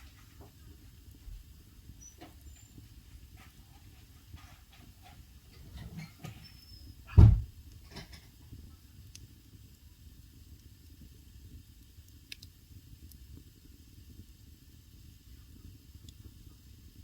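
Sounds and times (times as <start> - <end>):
fire crackles: 0.0 - 17.0
wood fire rumbling: 0.0 - 17.0
loud dull thump: 7.1 - 7.6.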